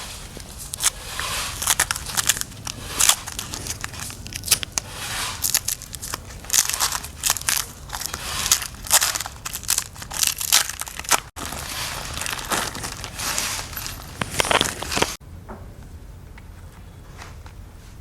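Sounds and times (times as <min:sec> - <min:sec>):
crinkling and scraping: 0:00.0 - 0:15.2.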